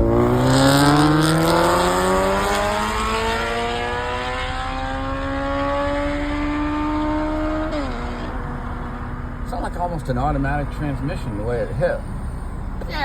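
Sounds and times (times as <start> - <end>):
motorcycle engine accelerating: 0.0 - 9.5.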